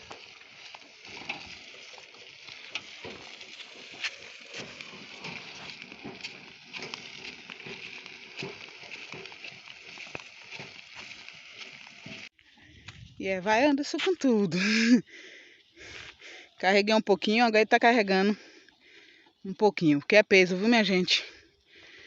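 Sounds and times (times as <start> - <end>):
footsteps crunching on dry ground: 0.0 - 15.0, 15.8 - 16.2
logs hauled on ground: 0.0 - 15.1.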